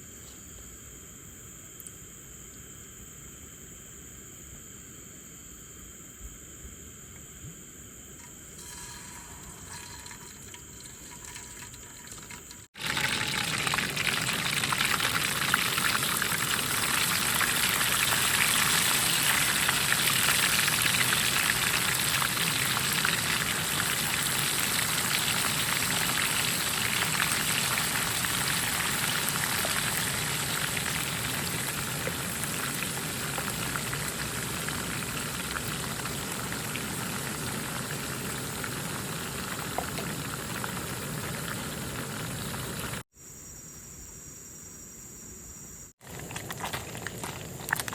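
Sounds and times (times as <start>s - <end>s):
pot boiling with crackling hiss: 7.2s - 43.1s, 45.9s - 47.9s.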